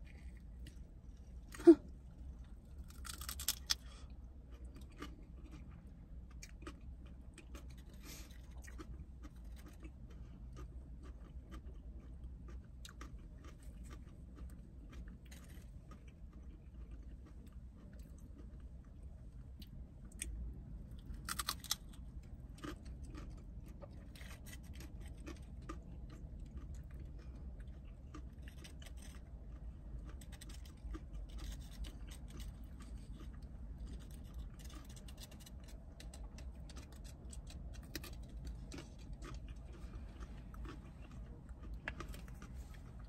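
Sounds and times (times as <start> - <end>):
steady low hum: 0.0 - 43.0
crunchy chewing of broccoli: 2.2 - 43.0.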